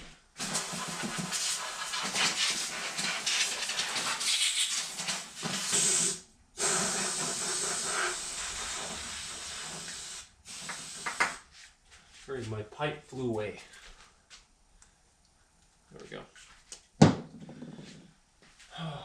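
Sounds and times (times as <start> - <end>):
compressed air blow gun hissing: 0.4 - 11.4.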